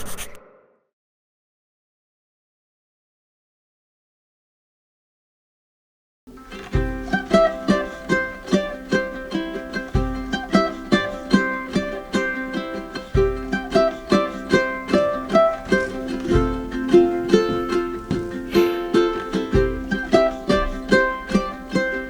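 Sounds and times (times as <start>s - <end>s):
plucked string instrument: 6.3s - 22.0s.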